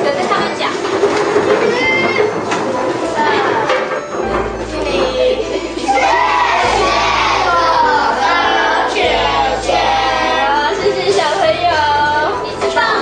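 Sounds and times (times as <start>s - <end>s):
music with voices singing: 2.9s - 13.0s.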